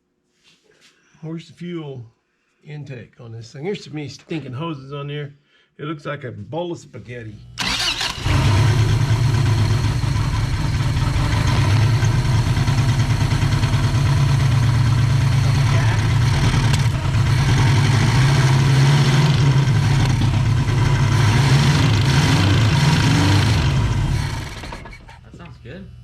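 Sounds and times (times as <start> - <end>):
car engine idling: 7.6 - 25.0.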